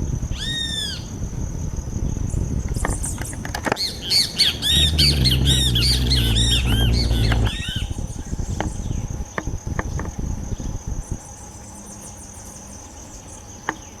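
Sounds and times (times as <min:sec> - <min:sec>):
insect buzzing: 0:03.7 - 0:09.2
bird squawking: 0:03.8 - 0:07.8
falling bird notes: 0:03.8 - 0:07.8.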